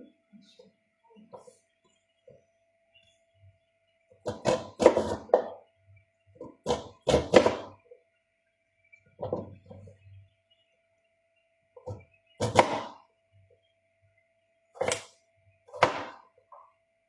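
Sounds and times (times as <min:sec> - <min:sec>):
knife chopping on cutting board: 0:04.3 - 0:05.5, 0:06.4 - 0:07.7, 0:12.4 - 0:13.0, 0:15.7 - 0:16.2.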